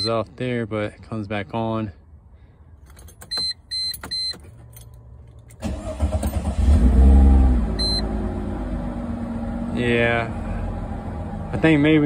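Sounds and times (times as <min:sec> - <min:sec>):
car engine cranking and starting: 0:02.8 - 0:09.6.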